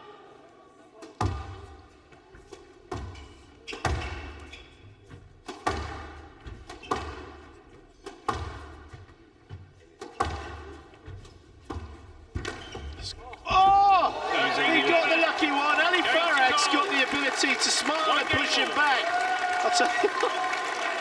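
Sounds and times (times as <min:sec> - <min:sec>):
squash ball thwacks off walls: 0:05.4 - 0:07.3, 0:08.1 - 0:08.7.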